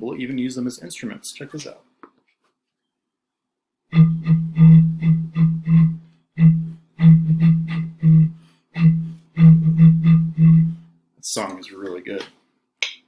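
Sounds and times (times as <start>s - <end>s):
jug blown low notes: 3.9s - 10.9s.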